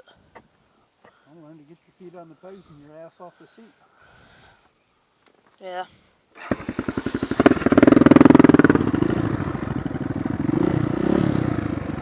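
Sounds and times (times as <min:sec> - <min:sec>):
dirt bike engine starting and idling: 0:06.3 - 0:12.0.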